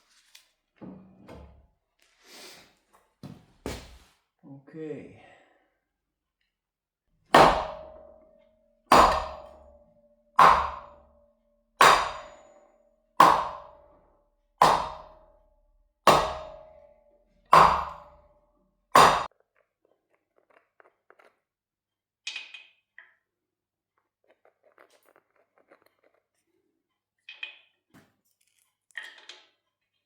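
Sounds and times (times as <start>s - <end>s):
hammer blows on steel: 10.4s - 11.0s, 11.8s - 12.5s, 19.0s - 19.3s.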